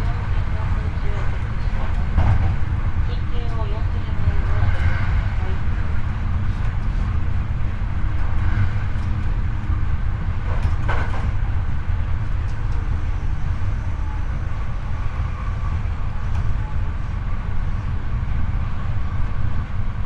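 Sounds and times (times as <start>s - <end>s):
train wheel and track rumble: 0.0s - 20.0s.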